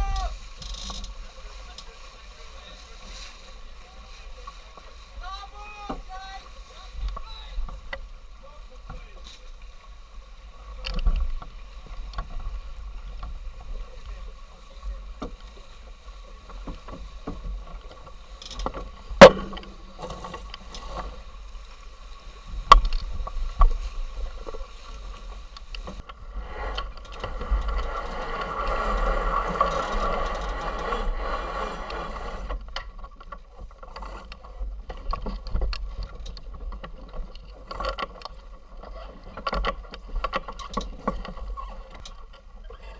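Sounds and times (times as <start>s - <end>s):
water noise: 0.0s - 42.9s
wind rumble on microphone: 6.2s - 33.8s.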